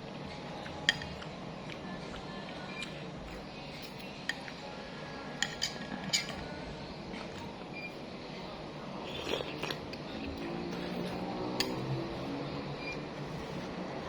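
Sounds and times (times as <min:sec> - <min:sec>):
metal spoon clinking against bowl: 0:05.4 - 0:06.4.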